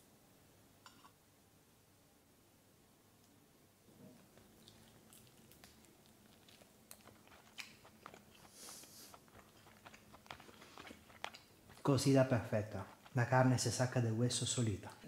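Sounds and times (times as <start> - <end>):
chewing crisp chicken wing: 4.3 - 13.4
wet mouth clicks: 4.5 - 12.2.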